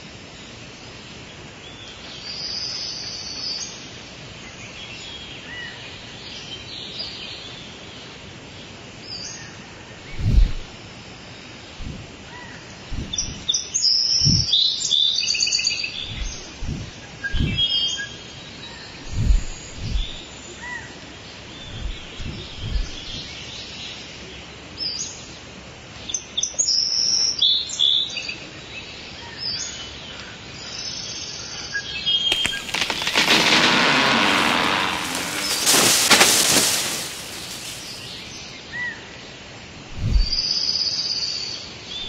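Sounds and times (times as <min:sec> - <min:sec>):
soft low thuds: 0:10.1 - 0:10.8, 0:11.8 - 0:12.2, 0:12.9 - 0:13.5, 0:14.2 - 0:14.5, 0:16.0 - 0:17.7, 0:19.0 - 0:20.3, 0:21.6 - 0:23.4, 0:39.9 - 0:40.4
birds chirping and singing: 0:15.9 - 0:17.9, 0:32.3 - 0:38.4
loud rushing hiss: 0:16.1 - 0:17.7, 0:32.3 - 0:38.4.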